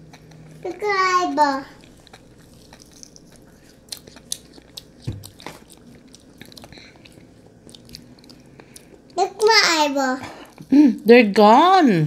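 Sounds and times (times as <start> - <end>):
chewing mouth clicks and smacks: 1.8 - 9.5.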